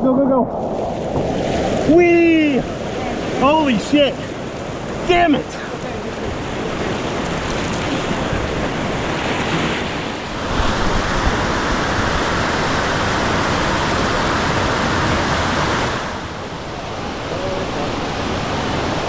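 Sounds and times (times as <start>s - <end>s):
whitewater rushing: 0.5s - 19.0s.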